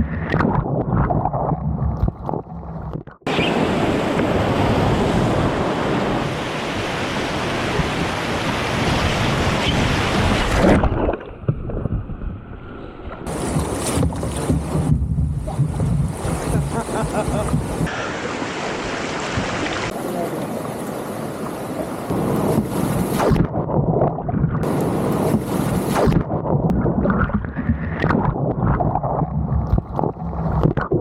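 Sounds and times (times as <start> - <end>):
whitewater rushing: 15.5 - 22.7.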